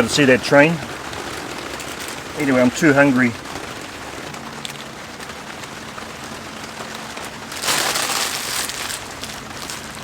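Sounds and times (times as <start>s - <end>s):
rain falling on a tarp: 0.0s - 10.0s.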